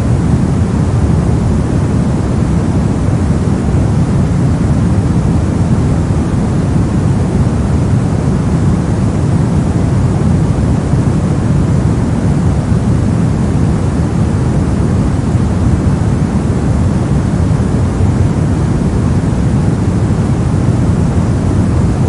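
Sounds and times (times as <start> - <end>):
brown noise rushing hiss: 0.0 - 22.0.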